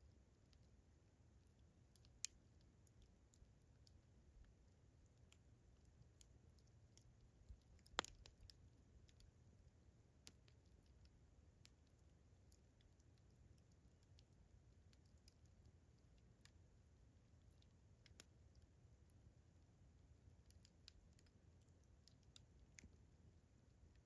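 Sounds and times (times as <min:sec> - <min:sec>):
campfire crackling: 0:00.1 - 0:18.7.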